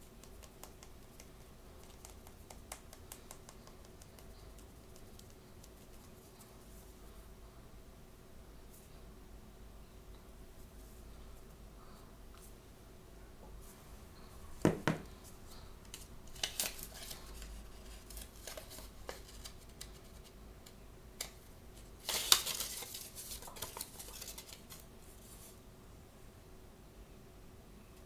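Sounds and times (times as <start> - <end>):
packaging tearing and crinkling: 16.3 - 20.0, 21.2 - 24.8.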